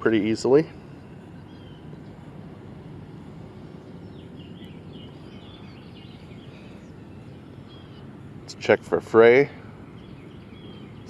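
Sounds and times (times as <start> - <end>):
faint bird chirps: 0.0 - 11.0
low outdoor rumble: 0.0 - 11.0.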